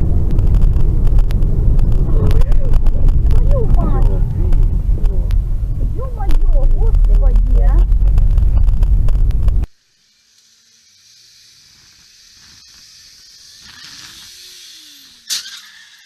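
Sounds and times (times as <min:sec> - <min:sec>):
road and wind rumble: 0:00.0 - 0:09.7.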